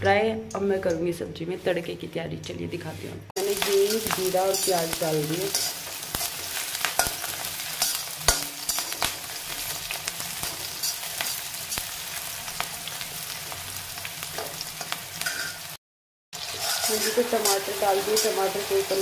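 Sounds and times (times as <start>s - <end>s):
metal spatula scraping a pan: 2.8s - 9.2s, 9.8s - 11.9s, 14.4s - 15.7s, 16.4s - 19.0s
onions sizzling in hot fat: 3.4s - 15.8s, 16.4s - 19.0s.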